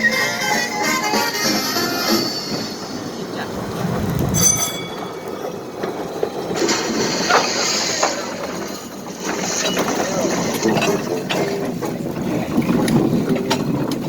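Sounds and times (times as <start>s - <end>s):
high wheel squeal: 0.0s - 3.5s, 4.3s - 6.0s
train wheels rattling on rails: 0.0s - 14.0s.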